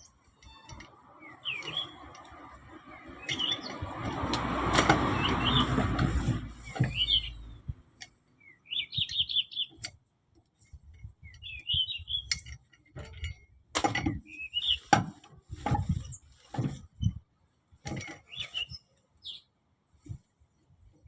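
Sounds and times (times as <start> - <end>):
birds chirping in trills: 0.4 - 2.2, 2.8 - 3.9, 5.2 - 5.8, 6.6 - 7.7, 8.4 - 9.9, 11.2 - 12.5, 14.2 - 14.9, 18.0 - 19.5
metallic clinks and knocks: 12.2 - 14.2.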